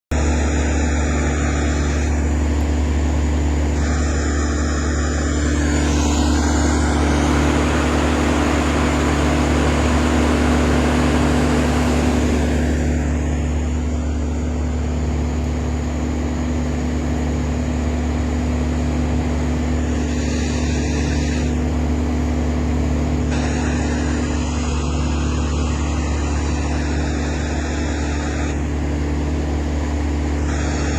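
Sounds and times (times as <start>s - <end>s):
low engine drone: 0.0s - 30.9s.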